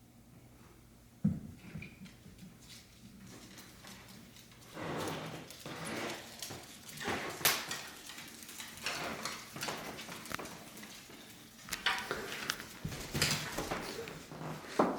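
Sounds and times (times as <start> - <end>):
animal footsteps on hard floor: 1.2 - 14.9.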